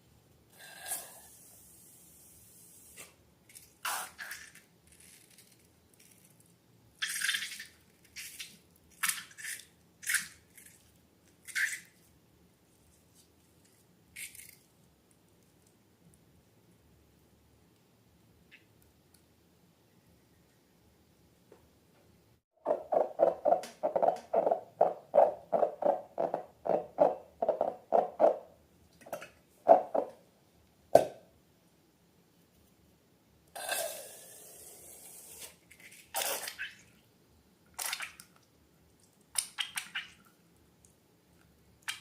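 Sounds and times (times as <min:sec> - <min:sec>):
hiss: 0:00.6 - 0:03.2.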